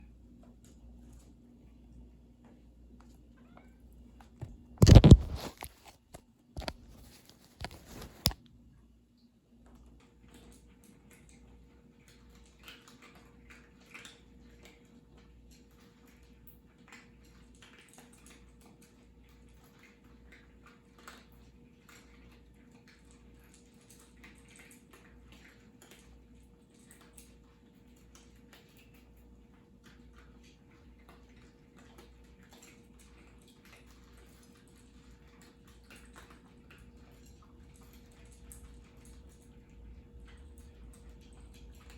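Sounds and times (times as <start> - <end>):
cats chewing food: 0.3 - 8.4, 9.6 - 41.9
low steady hum: 21.6 - 41.9.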